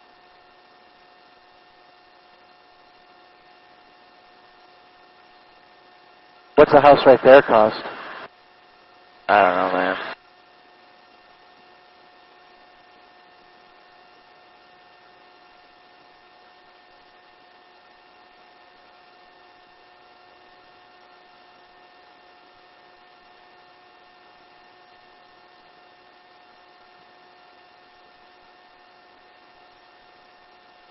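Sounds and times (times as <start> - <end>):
helicopter hum and hiss: 6.6 - 8.3, 9.3 - 10.2.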